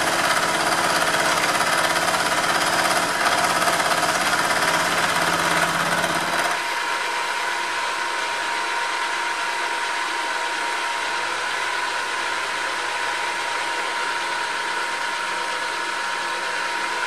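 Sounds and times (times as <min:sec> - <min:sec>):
milling machine whining: 0:00.0 - 0:08.1.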